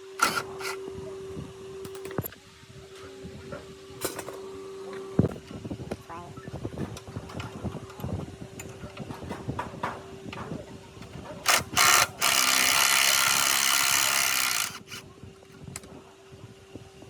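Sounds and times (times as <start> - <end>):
tool clicks and taps: 0.0 - 0.8, 11.5 - 15.0.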